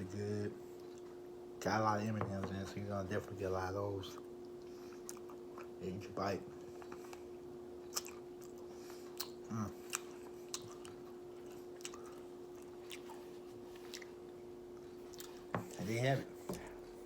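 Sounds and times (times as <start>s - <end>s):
steady background hum: 0.0s - 17.0s
person chewing: 4.5s - 5.8s, 6.6s - 15.8s.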